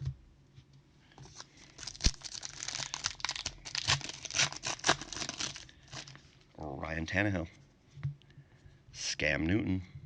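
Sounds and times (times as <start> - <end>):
foil wrapper tearing and crinkling: 1.4 - 6.2.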